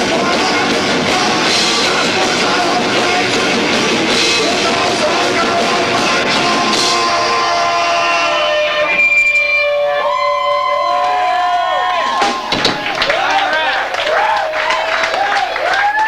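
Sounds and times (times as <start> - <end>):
live rock band playing: 0.0 - 10.4
held notes ringing: 5.7 - 12.9.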